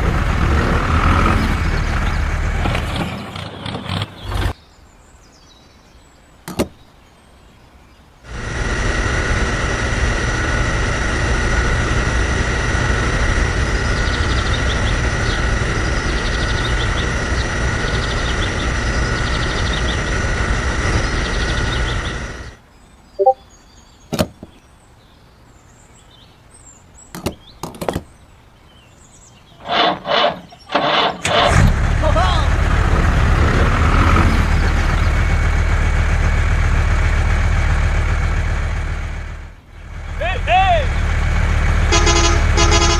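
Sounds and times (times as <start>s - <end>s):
small electric motor whining: 8.3s - 22.6s.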